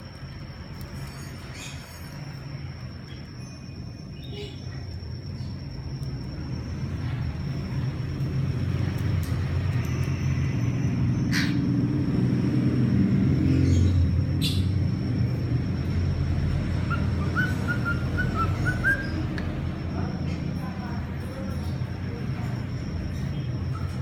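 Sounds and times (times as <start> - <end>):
sharp chirps: 12.9 - 21.0
cockatiel whistling: 16.8 - 19.4.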